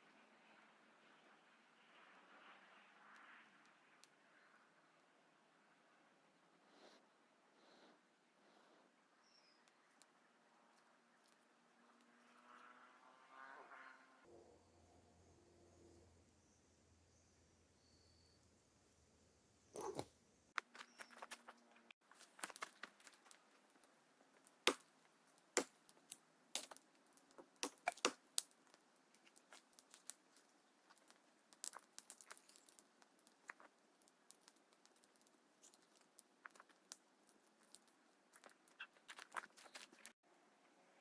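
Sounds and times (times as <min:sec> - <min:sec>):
dry crackling and snapping of wood: 0:19.8 - 0:40.2.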